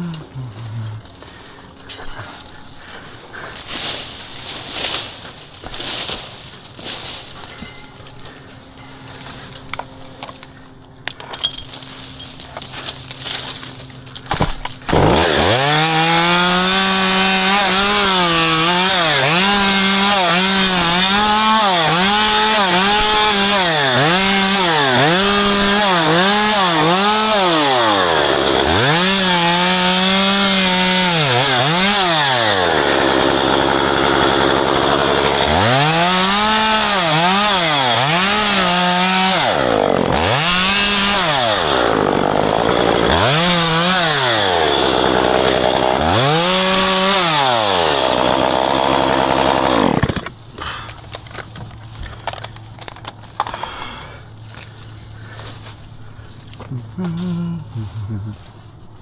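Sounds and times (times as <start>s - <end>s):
chainsaw revving: 14.8s - 50.9s.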